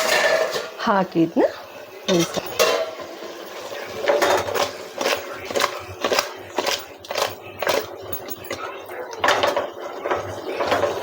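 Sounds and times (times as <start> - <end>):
utensil scraping metal pot: 0.0 - 0.8, 2.1 - 8.6.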